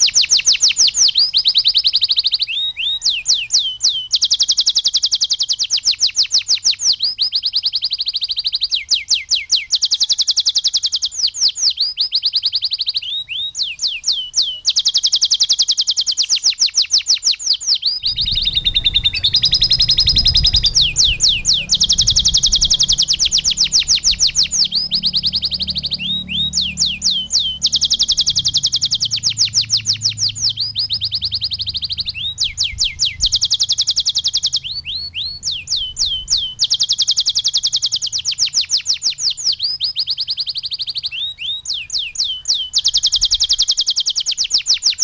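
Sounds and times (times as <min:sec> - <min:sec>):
canary singing trills: 0:00.0 - 0:45.0
low background rumble: 0:18.0 - 0:33.5.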